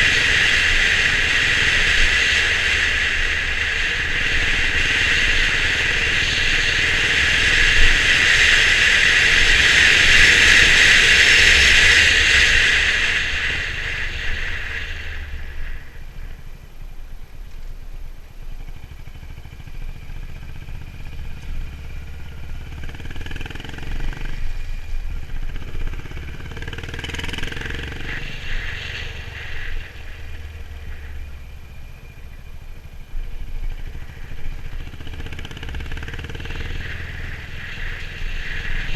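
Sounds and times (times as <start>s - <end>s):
loud even rushing noise: 0.0s - 16.6s, 33.3s - 38.9s
motorcycle engine running: 0.0s - 38.9s.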